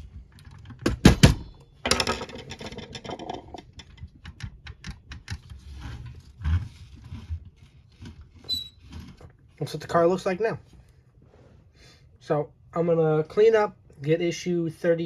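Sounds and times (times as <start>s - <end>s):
plastic parts rustling and scraping: 1.8s - 10.0s.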